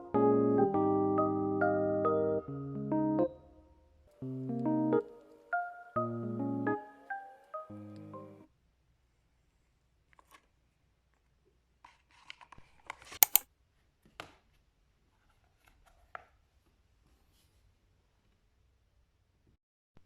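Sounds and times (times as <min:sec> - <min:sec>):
objects being handled: 0:11.8 - 0:13.4
sharp clicks: 0:13.2 - 0:13.4.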